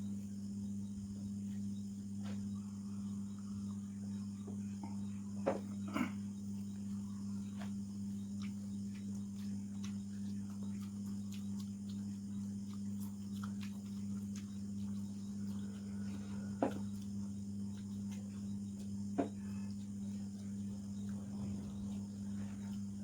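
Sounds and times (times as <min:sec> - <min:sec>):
chewing and smacking: 0:00.1 - 0:23.0
low hum: 0:17.6 - 0:23.0.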